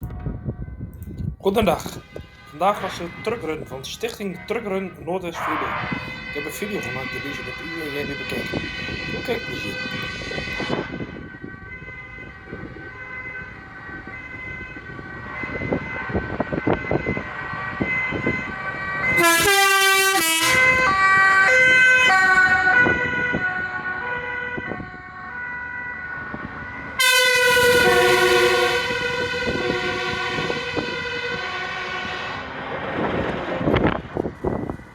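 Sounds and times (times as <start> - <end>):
truck horns sounding: 1.6 - 11.3, 15.3 - 24.8, 27.0 - 33.2.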